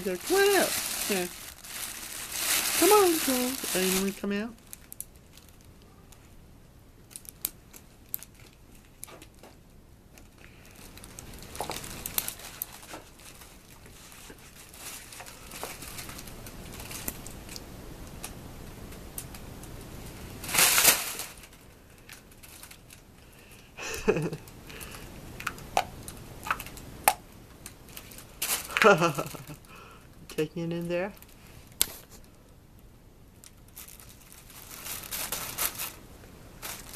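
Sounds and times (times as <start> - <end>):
crinkling and rustling: 0.0 - 6.4, 7.0 - 23.4, 27.5 - 29.7, 33.4 - 36.9.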